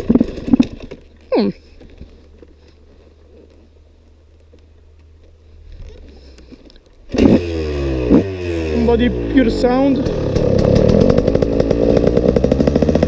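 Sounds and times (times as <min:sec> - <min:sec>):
motorcycle engine starting and revving: 0:00.0 - 0:01.7, 0:06.4 - 0:13.0.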